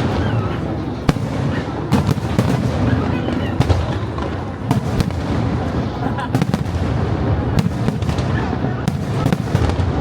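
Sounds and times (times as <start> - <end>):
fireworks rumble and crackle: 0.0 - 10.0
sharp firework bangs: 1.1 - 10.0.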